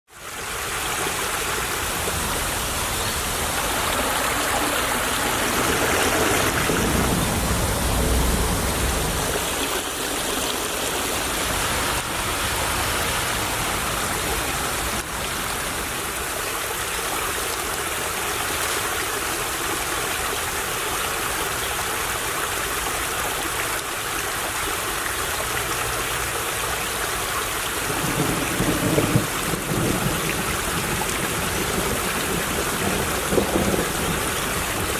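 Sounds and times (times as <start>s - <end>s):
stream babbling over stones: 0.1s - 28.2s
low rumble: 2.5s - 11.7s.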